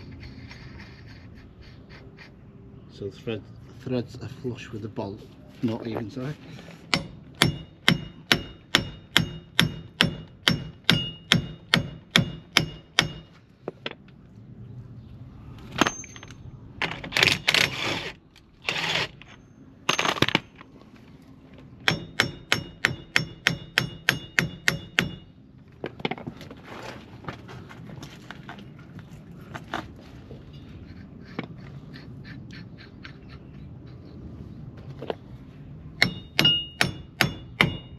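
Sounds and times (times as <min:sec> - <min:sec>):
short scraping noises: 0:00.0 - 0:02.6
hammer striking metal: 0:06.9 - 0:13.4, 0:21.8 - 0:25.3, 0:36.0 - 0:37.9.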